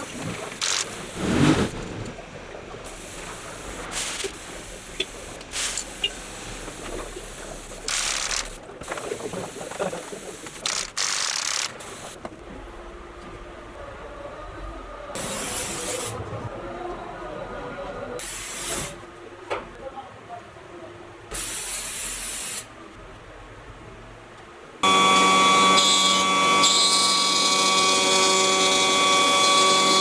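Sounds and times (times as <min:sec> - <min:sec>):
hissing spray bursts: 0:02.9 - 0:08.6, 0:21.3 - 0:22.7.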